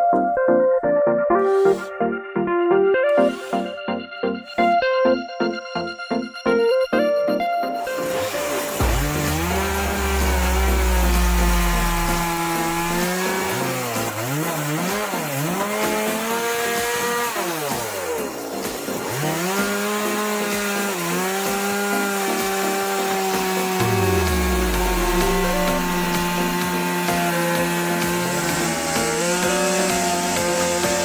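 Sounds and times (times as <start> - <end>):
chainsaw sawing through wood: 1.3 - 2.0, 3.2 - 3.7, 7.8 - 31.0.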